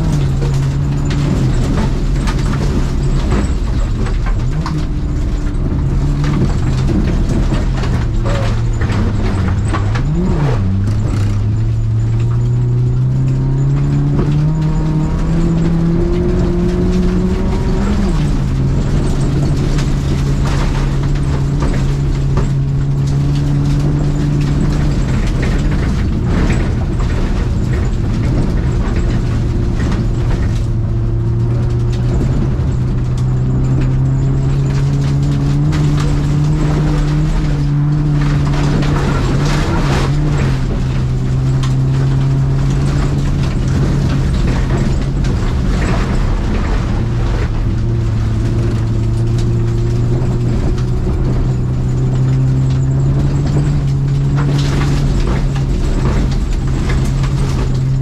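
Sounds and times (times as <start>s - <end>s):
car engine running hard: 0.0s - 58.0s
clicks and rattles: 0.0s - 58.0s.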